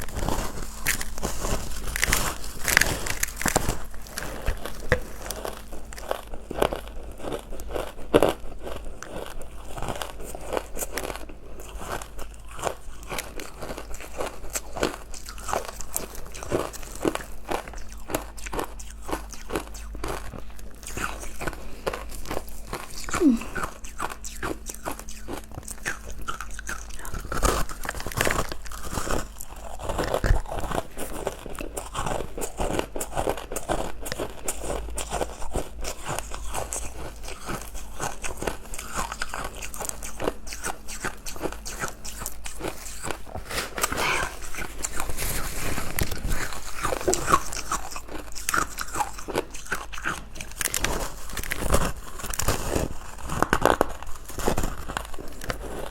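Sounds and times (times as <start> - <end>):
crunching and chewing ice: 0.0 - 55.9.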